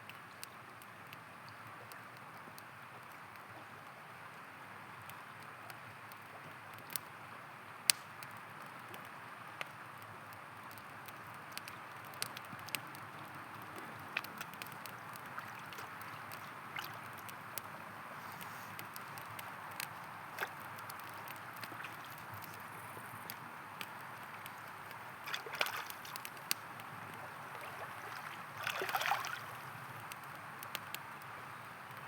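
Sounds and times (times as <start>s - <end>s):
campfire crackling and popping: 0.1s - 32.0s
river water rushing: 24.3s - 29.8s.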